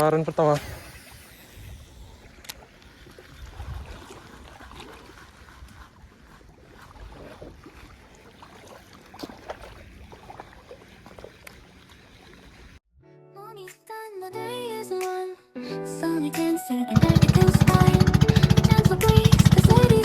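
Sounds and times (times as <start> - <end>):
water sloshing and lapping: 0.0 - 12.8.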